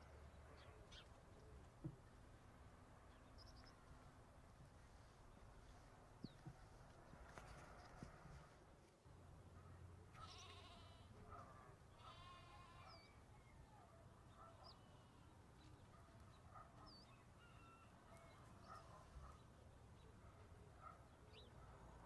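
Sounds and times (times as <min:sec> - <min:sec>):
livestock bleating: 0:10.2 - 0:11.2, 0:12.0 - 0:13.1.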